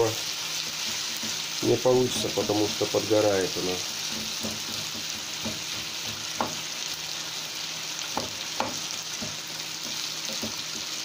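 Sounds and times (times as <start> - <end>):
potatoes sizzling in oil: 0.0 - 11.0
spatula tapping pan: 0.8 - 2.6, 4.0 - 6.7, 8.1 - 11.0.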